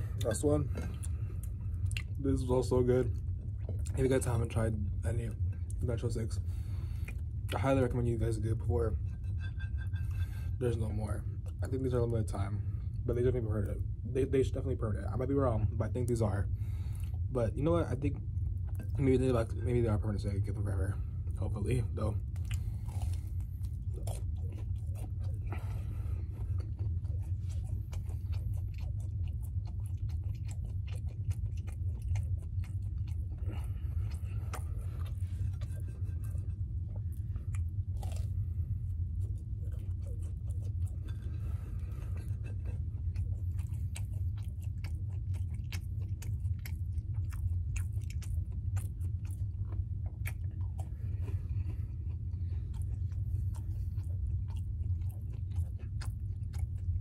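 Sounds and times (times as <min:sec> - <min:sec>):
close chewing with mouth clicks: 0:00.0 - 0:57.0
steady low hum: 0:00.0 - 0:57.0.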